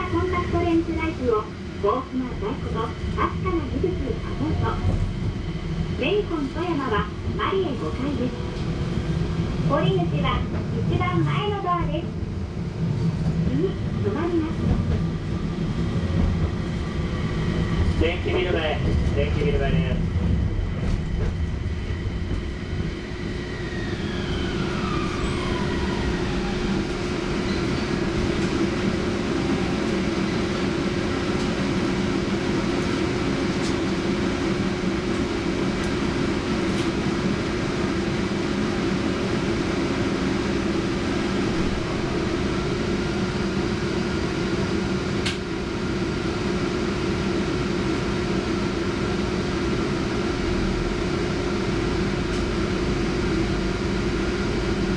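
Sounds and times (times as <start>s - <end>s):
tram motor whine: 0.0s - 54.9s
steady hum: 41.1s - 45.1s.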